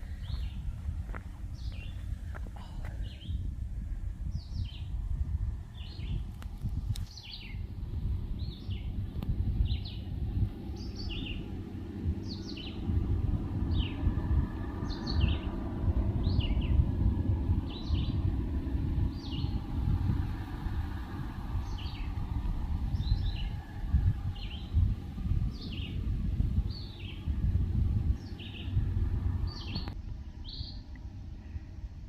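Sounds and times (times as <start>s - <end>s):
songbird chirping: 0.0s - 3.5s, 4.3s - 31.7s
low outdoor rumble: 0.0s - 32.0s.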